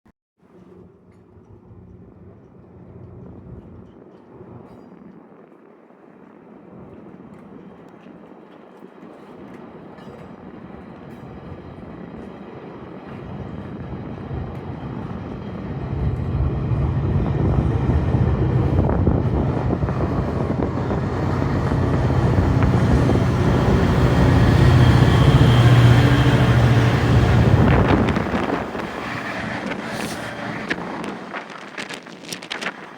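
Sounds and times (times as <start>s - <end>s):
diesel train engine drone: 6.4s - 32.9s.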